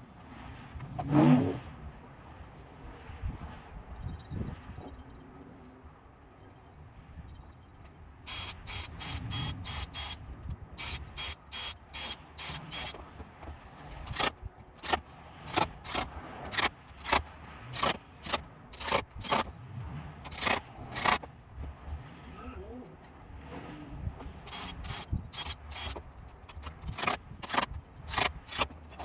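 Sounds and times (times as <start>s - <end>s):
power drill driving screws: 8.3s - 10.2s, 10.8s - 19.5s, 20.2s - 21.3s, 24.4s - 29.0s.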